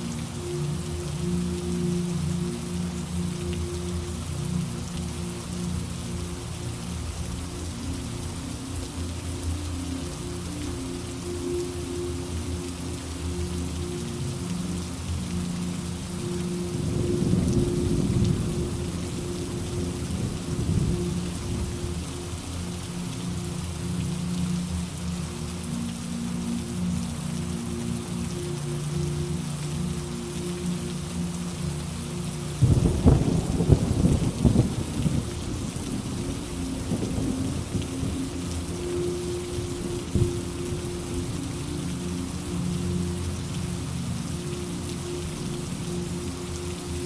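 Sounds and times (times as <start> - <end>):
heavy rain: 0.0 - 47.0
thunder rumbling: 32.6 - 38.2.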